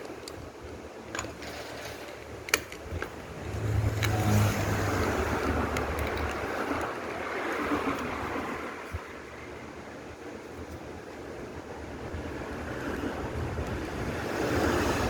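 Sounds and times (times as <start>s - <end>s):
sharp clicks: 2.2s - 7.2s.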